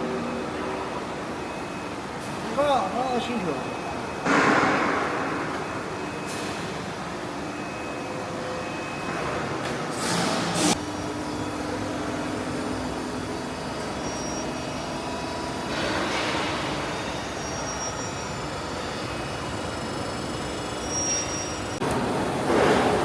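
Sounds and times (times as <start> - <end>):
industrial machine noise: 0.0 - 23.0
loud clunk: 4.2 - 6.6.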